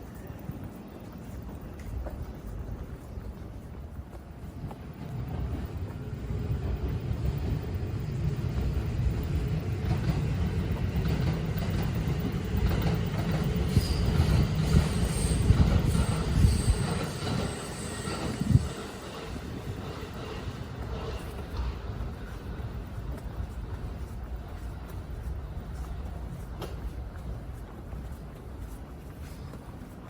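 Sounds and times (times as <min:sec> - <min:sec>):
train rumbling past: 0:00.0 - 0:30.0
high wheel squeal: 0:13.6 - 0:19.8.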